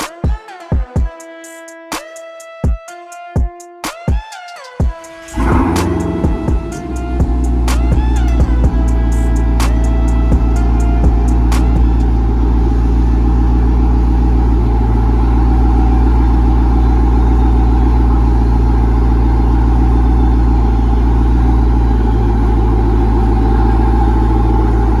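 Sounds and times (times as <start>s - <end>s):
engine running steadily: 5.3s - 25.0s.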